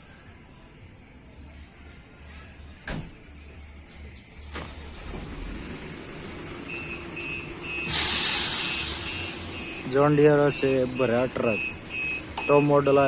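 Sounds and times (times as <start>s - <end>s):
truck engine rumbling: 1.5s - 13.0s
quick repeated beeping: 9.0s - 9.9s.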